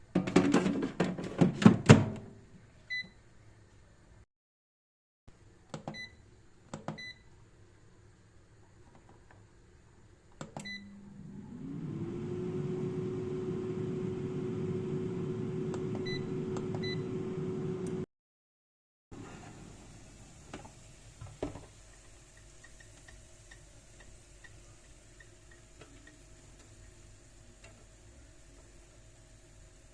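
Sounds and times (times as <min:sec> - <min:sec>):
air fryer fan humming: 0:10.6 - 0:18.0
short beeps from control panel: 0:16.0 - 0:17.1.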